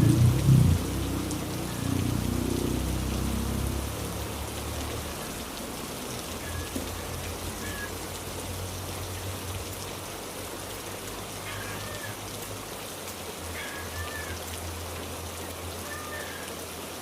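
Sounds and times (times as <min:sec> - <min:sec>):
low rumble: 0:00.0 - 0:02.3
heavy rain falling: 0:00.0 - 0:17.0.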